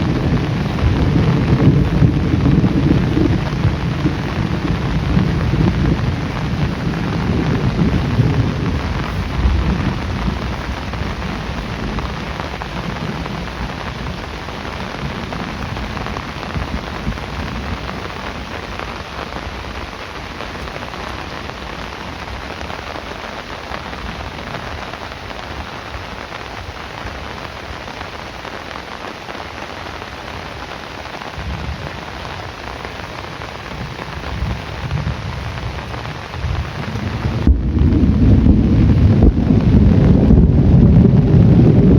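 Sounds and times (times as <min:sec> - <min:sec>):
low rolling thunder: 0:00.0 - 0:18.9, 0:31.4 - 0:41.9
heavy rain falling: 0:00.0 - 0:41.9.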